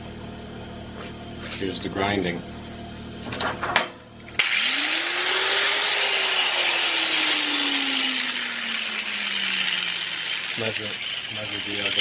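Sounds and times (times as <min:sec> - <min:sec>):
hand-held grinder grinding metal: 0:04.4 - 0:12.0.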